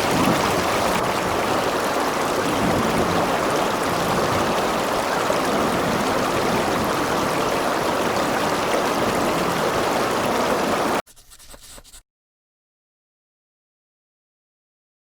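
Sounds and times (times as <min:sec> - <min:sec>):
river water rushing over rocks: 0:00.0 - 0:11.0.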